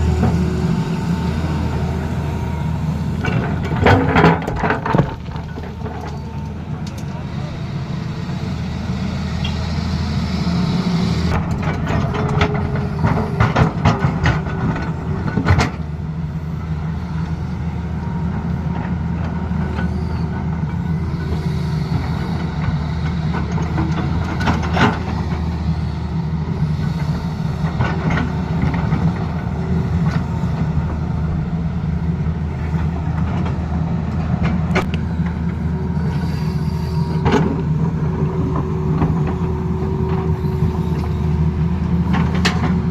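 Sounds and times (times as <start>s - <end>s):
excavator diesel engine running: 0.0s - 42.9s
clattering knocks and scraping: 3.2s - 7.1s.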